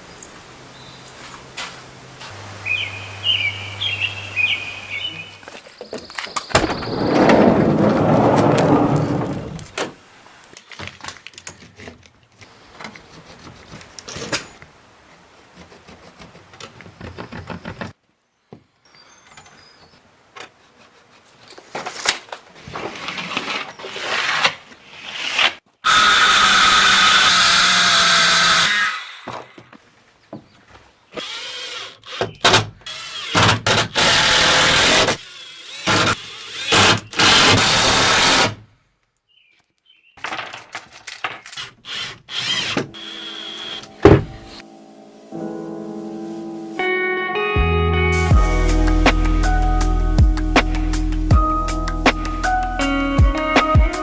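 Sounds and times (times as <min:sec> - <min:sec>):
power drill running: 0:31.2 - 0:32.2, 0:32.9 - 0:38.4, 0:41.6 - 0:44.6
tools and wood panels knocking: 0:44.0 - 0:44.6.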